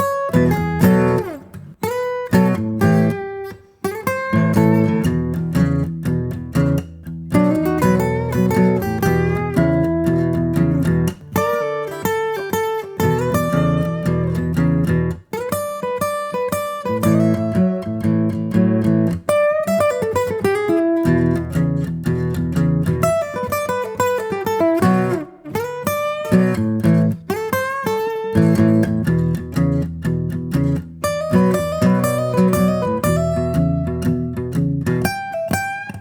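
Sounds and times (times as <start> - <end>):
guitar plucked and strummed: 0.0 - 36.0.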